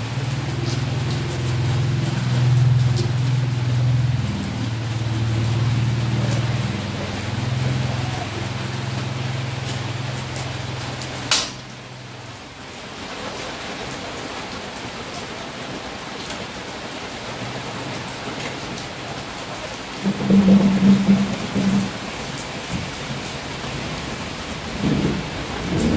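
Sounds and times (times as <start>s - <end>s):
steady rain falling: 0.0s - 25.9s
loud low-pitched tone: 20.0s - 22.2s
low steady hum: 20.0s - 22.2s.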